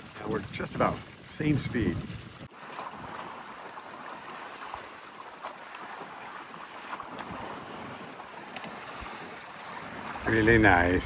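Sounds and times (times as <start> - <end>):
wind and water washing past hull: 0.0 - 11.0.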